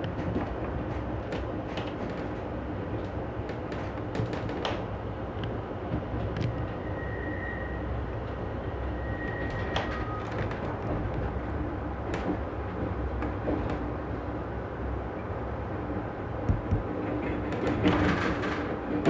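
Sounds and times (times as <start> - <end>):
train wheels rumbling on rail: 0.0 - 19.0
faint high squeal: 6.8 - 8.0, 8.8 - 10.3.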